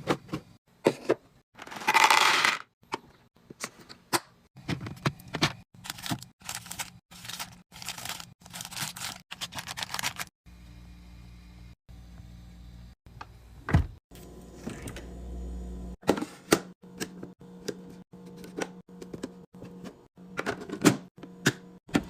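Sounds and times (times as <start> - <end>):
packaging crinkling rip: 5.9 - 10.3.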